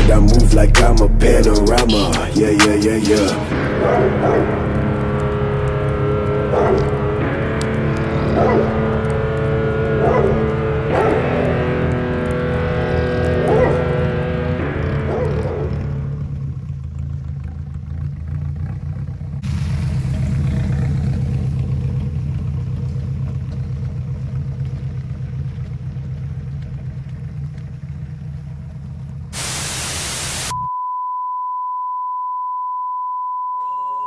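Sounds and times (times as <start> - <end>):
car exhaust droning: 0.0 - 30.6
wind and road noise: 3.5 - 30.5
static hiss: 29.4 - 30.6
steady high beep tone: 29.9 - 34.0.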